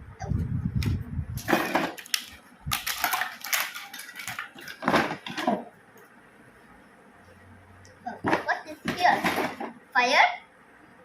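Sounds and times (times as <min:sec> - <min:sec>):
plastic toy pieces clattering: 0:01.4 - 0:05.6
packaging rustling: 0:01.4 - 0:05.7.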